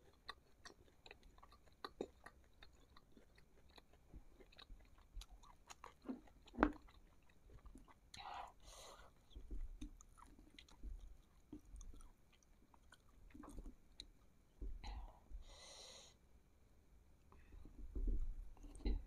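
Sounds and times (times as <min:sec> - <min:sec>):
chewing food: 0:00.0 - 0:15.4, 0:17.3 - 0:19.0.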